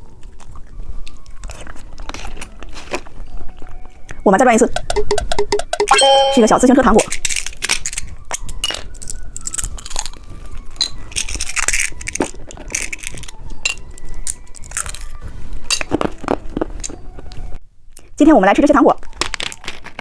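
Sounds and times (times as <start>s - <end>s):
plastic packaging crinkling: 19.2s - 20.0s.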